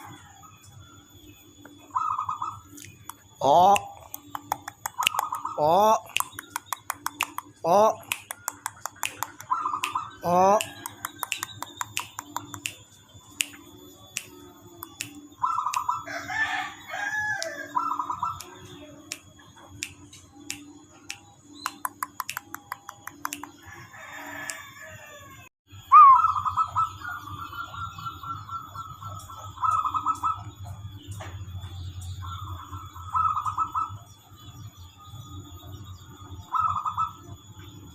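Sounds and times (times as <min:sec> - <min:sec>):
birds clicking and trilling: 0:00.0 - 0:37.9
chicken calling: 0:03.4 - 0:12.7, 0:23.2 - 0:30.6
sharp rising and falling bird call: 0:25.8 - 0:29.0.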